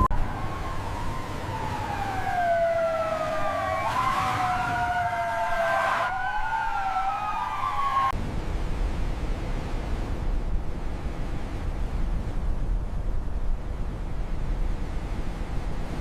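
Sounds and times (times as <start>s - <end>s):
emergency sirens wailing: 0.0s - 8.2s
low wind-like rumble: 0.0s - 16.0s.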